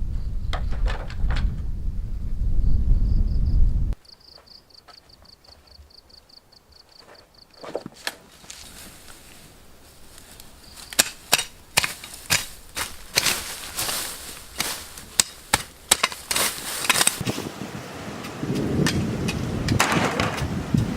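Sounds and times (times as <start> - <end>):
blade chopping bamboo: 10.9 - 17.3.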